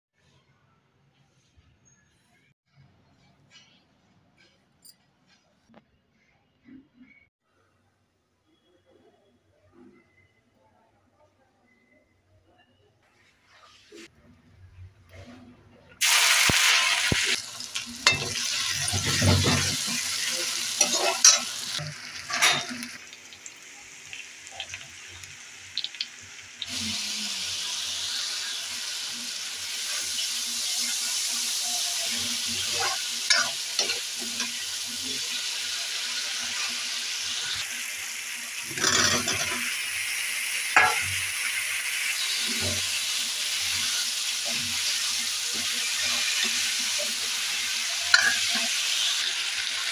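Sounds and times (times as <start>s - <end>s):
onions sizzling in hot oil: 16.0s - 49.9s
spoon stirring and scraping pan: 18.0s - 22.9s, 32.6s - 34.6s, 38.7s - 39.8s, 40.8s - 41.3s, 44.7s - 49.2s.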